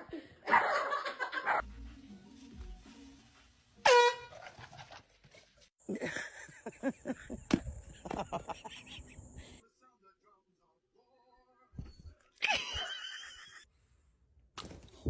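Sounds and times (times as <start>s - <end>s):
loud pitched honk: 3.8s - 4.4s.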